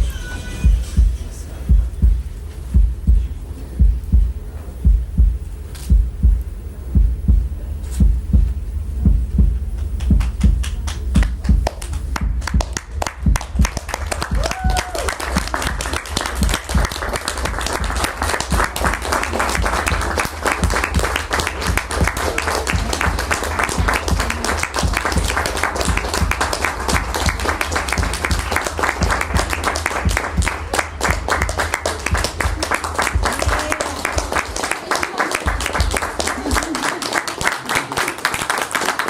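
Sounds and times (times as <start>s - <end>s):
people applauding: 9.8s - 39.0s.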